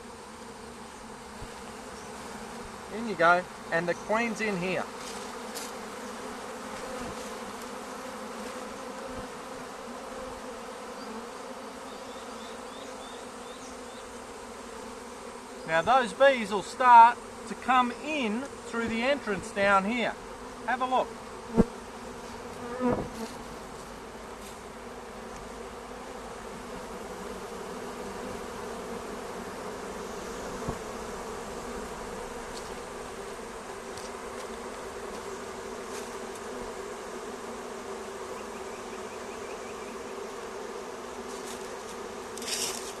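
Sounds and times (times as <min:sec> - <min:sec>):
swarm of bees buzzing: 0:00.0 - 0:43.0.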